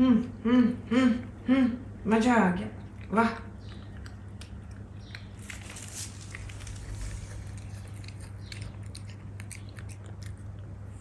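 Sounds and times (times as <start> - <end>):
cat crunching food: 2.9 - 11.0.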